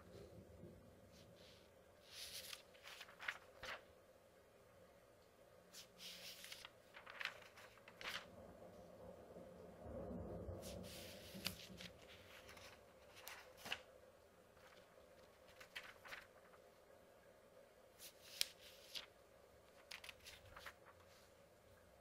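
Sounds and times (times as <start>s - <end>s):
paper pages being turned: 1.1s - 3.9s, 5.7s - 8.3s, 10.6s - 16.8s, 18.0s - 21.4s
distant thunder rumble: 8.3s - 12.8s.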